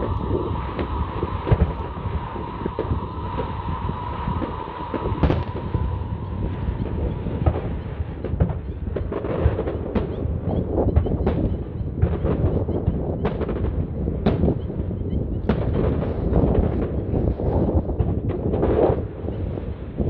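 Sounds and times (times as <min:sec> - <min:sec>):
low rumble: 0:00.0 - 0:09.4
fireworks bangs and crackles: 0:00.0 - 0:20.0.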